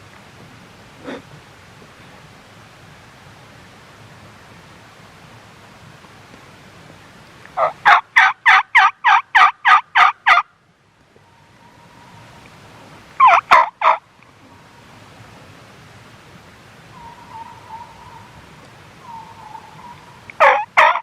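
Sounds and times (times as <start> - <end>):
turkey calling: 7.6 - 10.4, 13.2 - 14.0, 16.9 - 18.4, 19.0 - 21.0.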